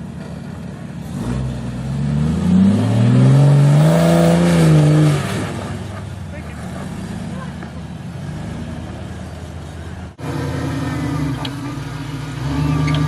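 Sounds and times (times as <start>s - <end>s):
engine revving: 1.0s - 7.6s, 10.1s - 13.0s.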